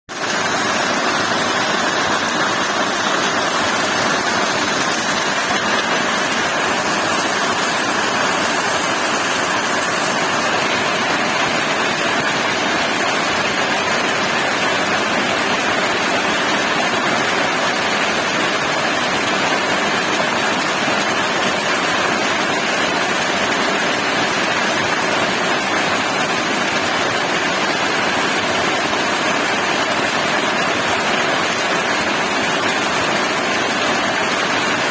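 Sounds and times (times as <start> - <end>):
heavy rain falling: 0.2 - 21.1.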